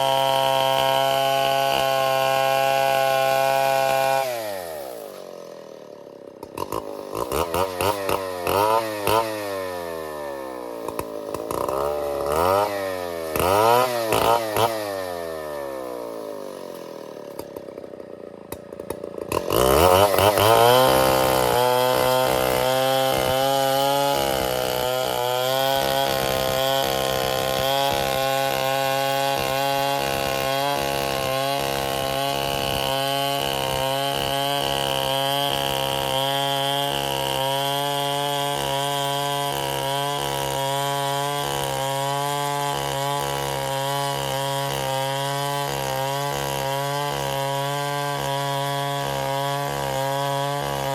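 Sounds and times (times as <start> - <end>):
chainsaw revving: 0.0 - 50.9.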